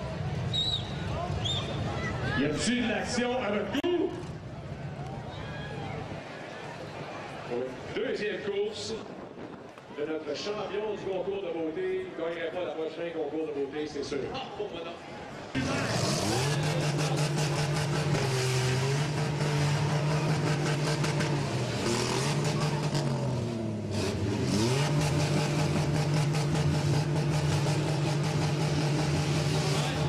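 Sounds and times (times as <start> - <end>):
car engines revving: 15.4 - 30.0.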